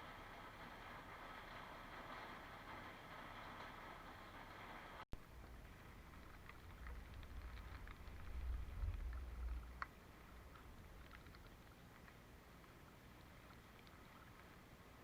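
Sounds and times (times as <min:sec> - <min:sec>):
wind buffeting microphone: 0:05.9 - 0:11.0.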